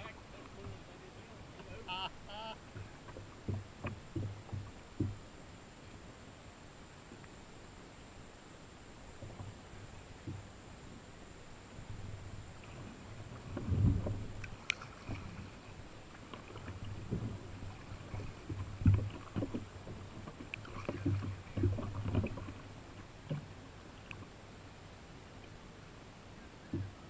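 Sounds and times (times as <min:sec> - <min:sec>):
paddle knocking on canoe hull: 0:01.5 - 0:05.2, 0:16.4 - 0:23.5, 0:26.6 - 0:27.0.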